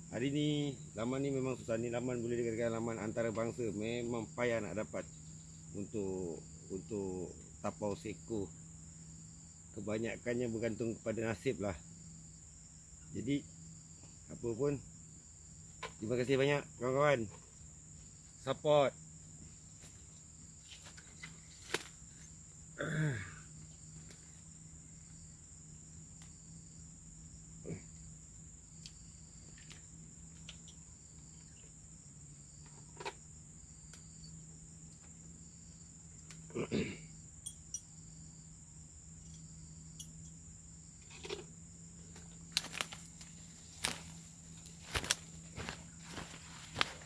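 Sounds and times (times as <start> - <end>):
insects trilling: 0.0 - 47.0
short scuffs or knocks: 42.5 - 47.0.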